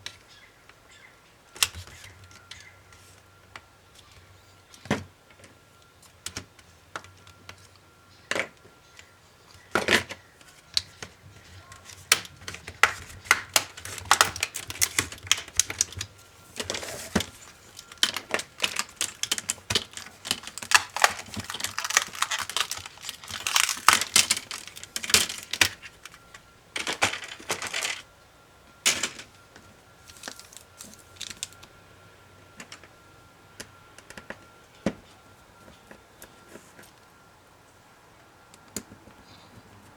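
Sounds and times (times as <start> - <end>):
plastic and metal parts clicking: 10.8 - 28.0.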